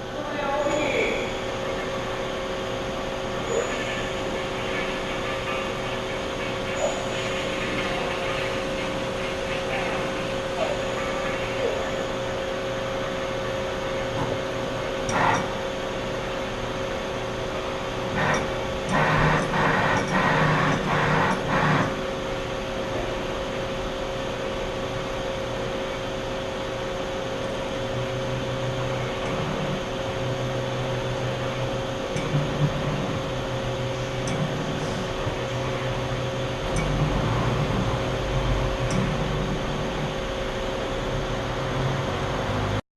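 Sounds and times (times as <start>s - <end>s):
lathe hum and whine: 0.0s - 42.8s
bursts of machine noise: 18.0s - 22.2s.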